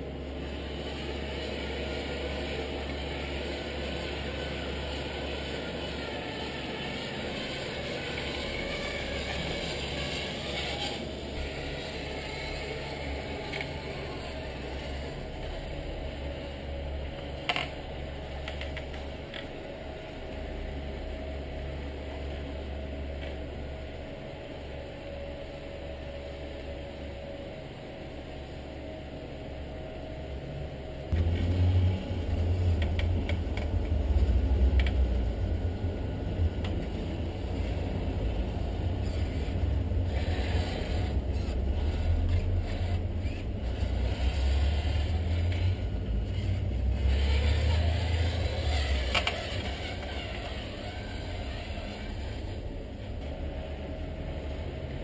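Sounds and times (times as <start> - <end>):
model truck motor rumble: 36.6 - 55.0.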